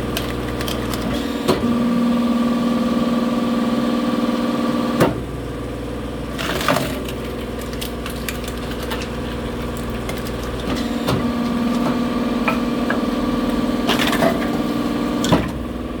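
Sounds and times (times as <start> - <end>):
firewood cracking and splintering: 0.0 - 1.4, 6.3 - 12.6
engine-driven machine running: 0.0 - 16.0.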